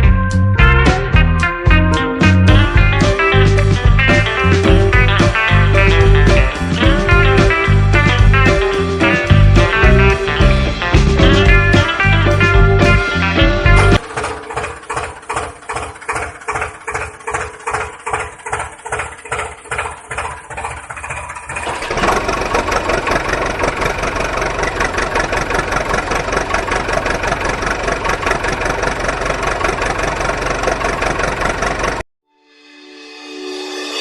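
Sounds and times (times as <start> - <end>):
engine chugging: 2.2 - 32.0.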